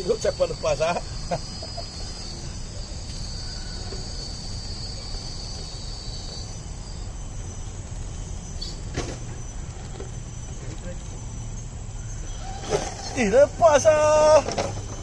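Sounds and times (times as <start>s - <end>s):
cricket trilling: 0.0s - 15.0s
low outdoor rumble: 0.0s - 15.0s.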